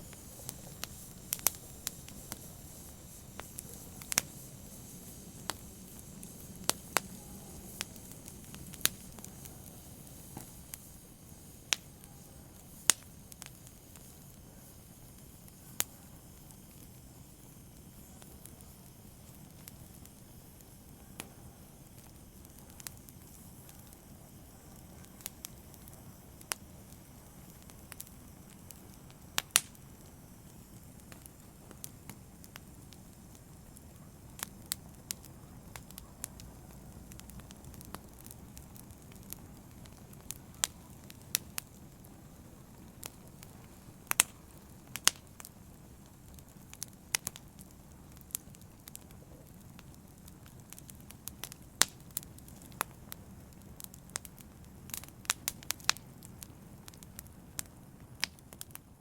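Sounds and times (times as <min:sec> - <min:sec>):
open fire crackling and popping: 0:00.0 - 0:59.0.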